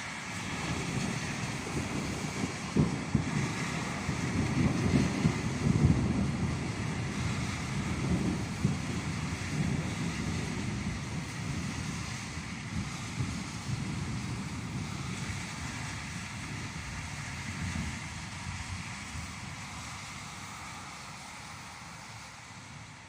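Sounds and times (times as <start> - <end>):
rolling thunder: 0.4 - 18.7.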